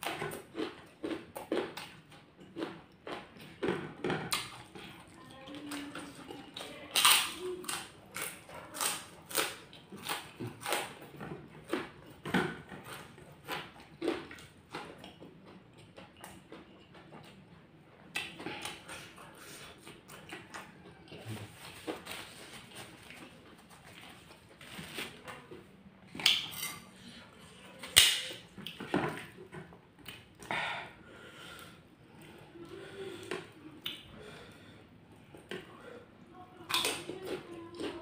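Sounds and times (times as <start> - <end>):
chewing: 0.0 - 38.0
crackers crunching: 5.6 - 16.1, 19.9 - 26.7.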